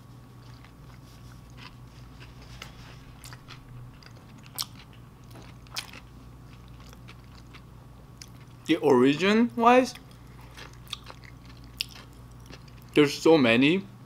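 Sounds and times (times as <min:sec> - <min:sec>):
wet chewing of sandwich: 0:00.0 - 0:08.7, 0:10.0 - 0:13.0.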